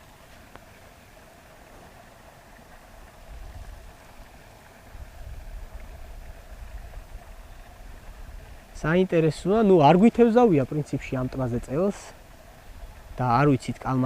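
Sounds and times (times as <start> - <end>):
faint outdoor hiss: 0.0 - 14.0
wind buffeting microphone: 3.2 - 10.0.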